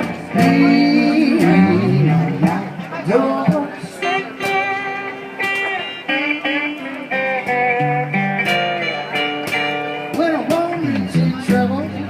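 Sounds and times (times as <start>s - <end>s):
person singing: 0.0s - 5.2s, 10.1s - 12.0s
slide guitar notes: 0.0s - 12.0s.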